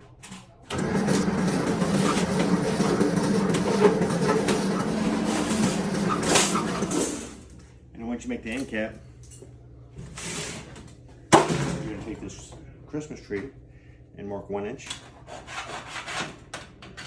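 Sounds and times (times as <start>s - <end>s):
power tool cutting sheet metal: 0.7s - 7.4s.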